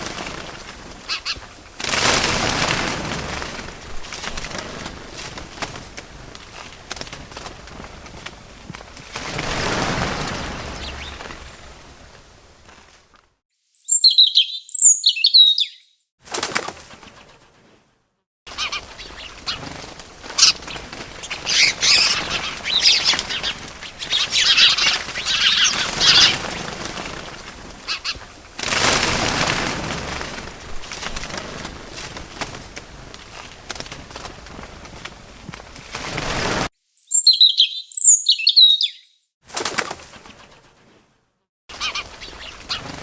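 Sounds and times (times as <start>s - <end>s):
birds chirping and twittering: 0.0s - 1.6s, 9.2s - 12.0s, 13.6s - 16.0s, 18.5s - 29.0s, 36.8s - 39.2s, 41.7s - 43.0s
bird wings flapping: 0.0s - 13.4s, 16.2s - 17.9s, 18.5s - 36.7s, 39.4s - 43.0s.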